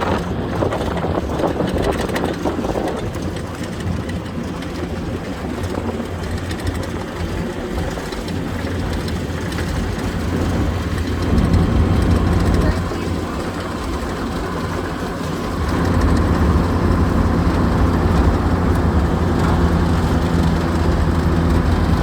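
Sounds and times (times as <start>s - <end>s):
half-track engine rumbling: 0.0s - 22.0s
rattling: 8.1s - 22.0s.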